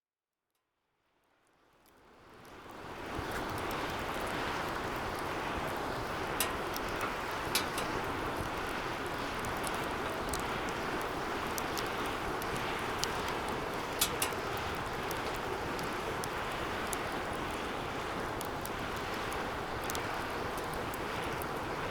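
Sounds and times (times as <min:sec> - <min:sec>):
wood fire crackling: 0:02.3 - 0:21.9
sharp fire pops: 0:06.0 - 0:15.5.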